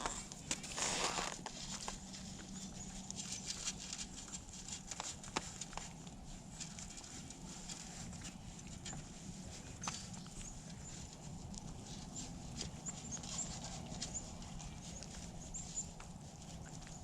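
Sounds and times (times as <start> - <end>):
footsteps crunching in snow: 0.0 - 2.2.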